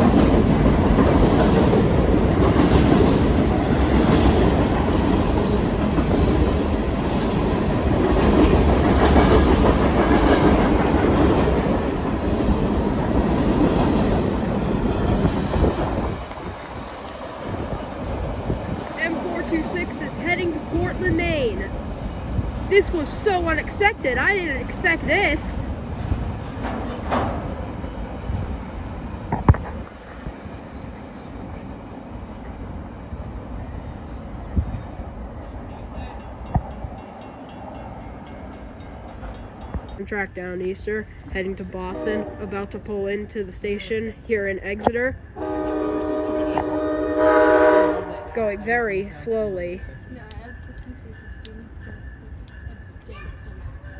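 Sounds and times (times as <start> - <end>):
wheels clacking over rail joints: 0.0 - 21.9
freight train passing: 0.0 - 53.9.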